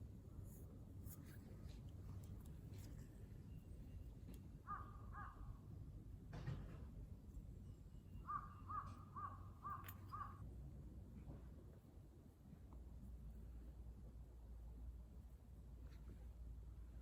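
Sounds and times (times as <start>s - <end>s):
crow cawing: 4.7s - 5.4s, 8.3s - 10.4s.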